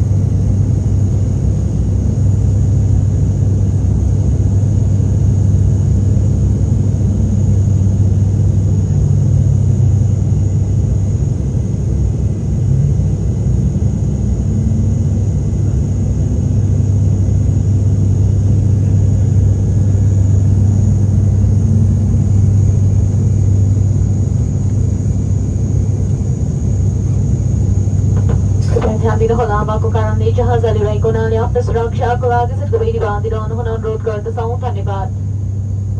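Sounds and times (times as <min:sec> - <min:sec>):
airliner engines droning: 0:00.0 - 0:35.9
faint high whine: 0:14.4 - 0:35.9.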